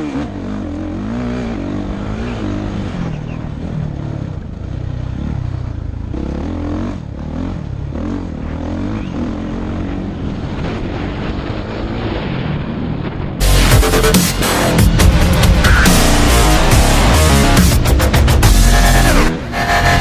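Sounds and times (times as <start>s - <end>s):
dirt bike engine revving: 0.0s - 12.1s, 13.4s - 20.0s
loud music: 13.4s - 20.0s.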